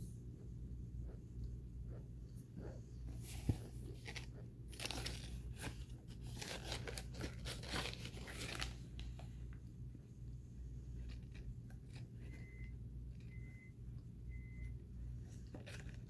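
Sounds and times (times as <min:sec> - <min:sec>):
cardboard box rustling: 0:03.2 - 0:08.8.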